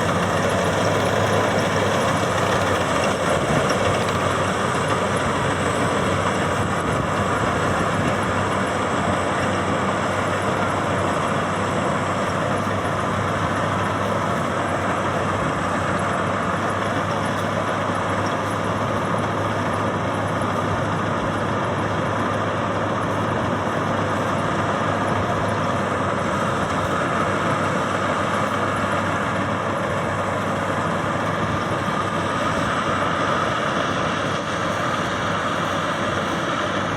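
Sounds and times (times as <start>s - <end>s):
combine harvester running: 0.0s - 36.9s.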